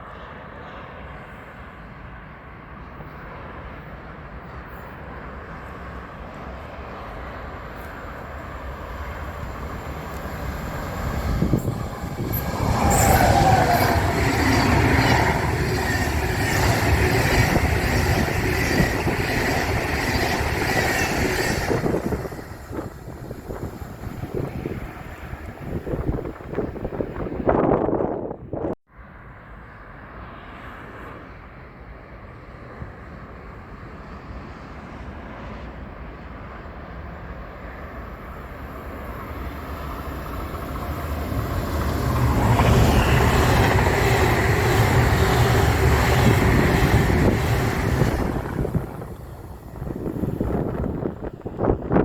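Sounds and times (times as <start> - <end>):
train passing: 0.1 - 52.0
wheel-on-rail noise: 6.4 - 27.3, 38.1 - 52.0.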